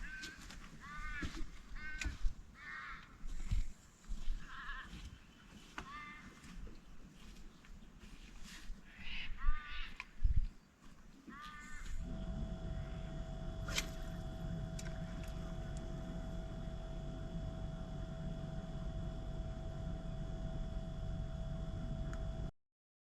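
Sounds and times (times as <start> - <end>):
crow cawing: 0.0 - 3.4, 4.4 - 6.7, 8.8 - 10.3, 11.2 - 12.1
steady low hum: 0.0 - 22.5
thin constant whine: 0.0 - 22.5.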